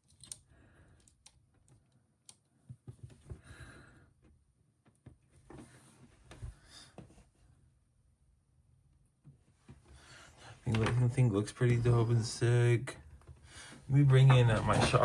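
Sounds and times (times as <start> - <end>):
faint plastic clicks: 0.0 - 3.4.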